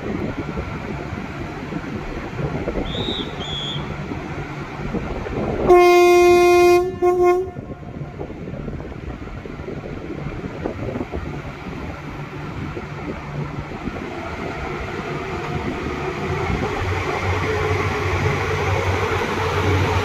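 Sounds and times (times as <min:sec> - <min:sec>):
low train rumble: 0:00.0 - 0:20.0
train horn blasts: 0:05.6 - 0:07.8.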